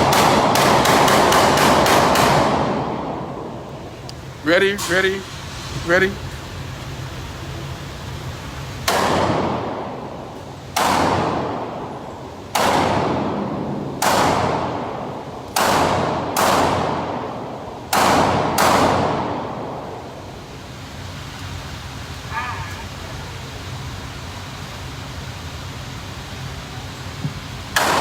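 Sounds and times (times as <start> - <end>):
gunshots with long echo: 0.0 - 3.7, 8.8 - 20.1, 27.8 - 28.0.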